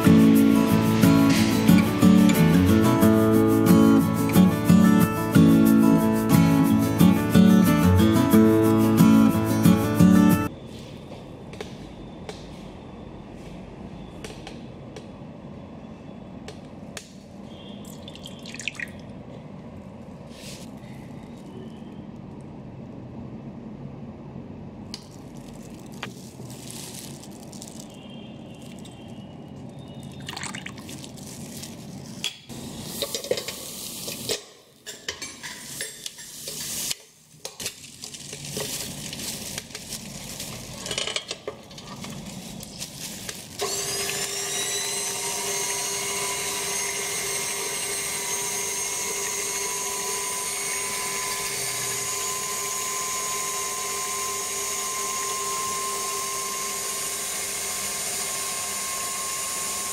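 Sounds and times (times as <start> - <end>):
ingredients pouring into metal bowl: 30.0 - 32.2
stand mixer motor whine: 43.6 - 59.9.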